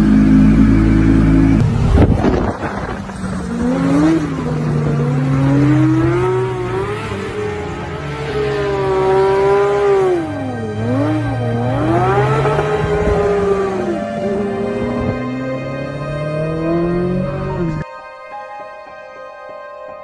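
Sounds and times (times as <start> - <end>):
car engine revving: 0.0 - 17.8.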